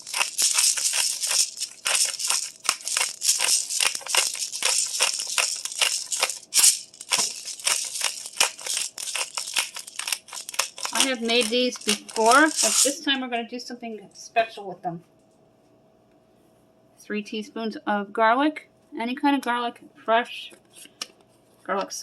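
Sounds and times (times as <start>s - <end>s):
pepper shaker rattling: 0.0s - 13.1s.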